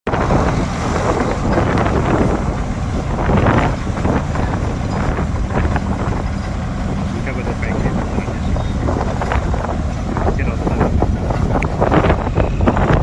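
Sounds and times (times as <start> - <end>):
tractor engine running: 0.0 - 13.0
rushing noise: 0.1 - 13.0.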